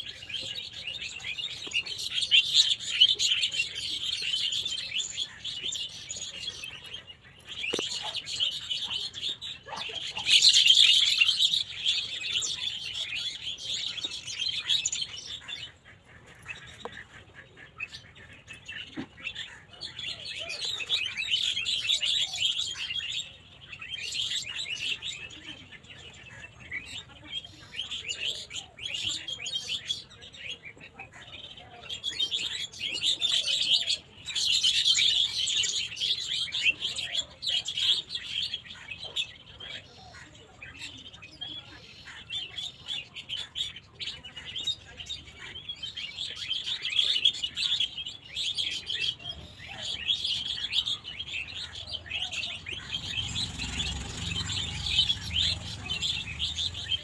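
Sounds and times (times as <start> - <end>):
small birds chirping and twittering: 0.0 - 57.0.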